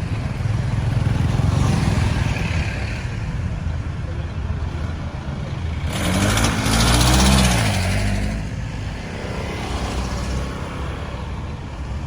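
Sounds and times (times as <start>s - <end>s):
road traffic noise: 0.0s - 12.0s
vehicle passing by: 5.4s - 11.6s.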